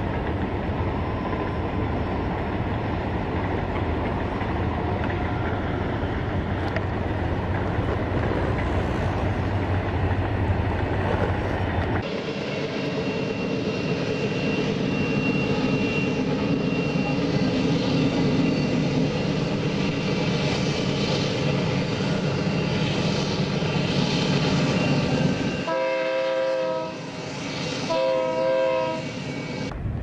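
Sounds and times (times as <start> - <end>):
freight train rumbling: 0.0 - 30.0
train horn chord: 25.6 - 27.1, 27.9 - 29.2.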